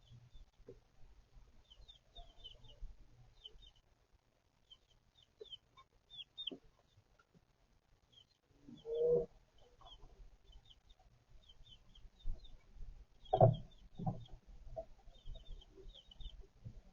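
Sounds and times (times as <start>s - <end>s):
baby chicks peeping: 0.0s - 3.9s, 4.5s - 7.4s, 8.0s - 16.9s
hen clucking: 4.7s - 7.3s, 8.1s - 16.5s.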